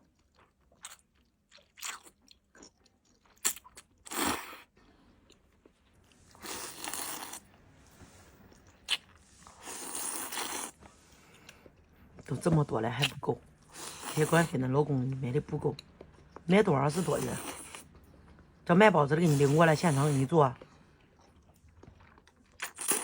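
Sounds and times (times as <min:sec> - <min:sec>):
mouth clicks and chewing: 0:00.0 - 0:04.6, 0:08.5 - 0:12.3, 0:20.6 - 0:23.0.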